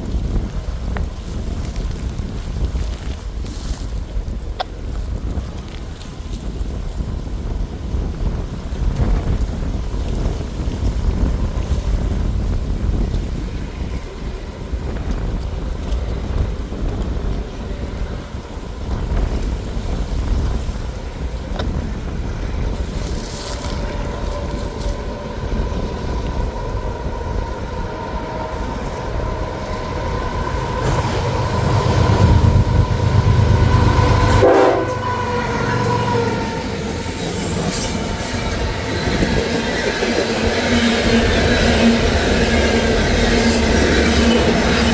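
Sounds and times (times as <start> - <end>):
diesel locomotive rumble: 0.0 - 44.9
train air horn: 23.2 - 39.7.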